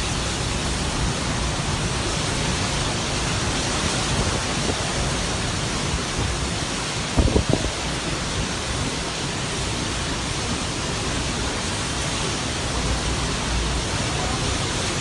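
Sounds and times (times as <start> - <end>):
storm wind and rain: 0.0 - 15.0.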